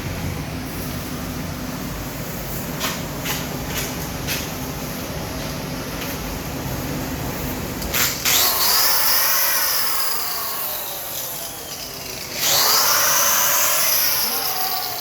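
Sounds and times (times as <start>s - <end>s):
power tool whining: 7.9s - 15.0s.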